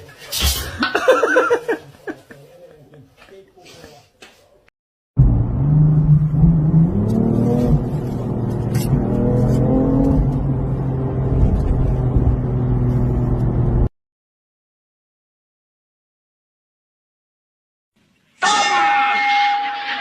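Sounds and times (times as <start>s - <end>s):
vehicle engine revving: 5.2s - 13.9s.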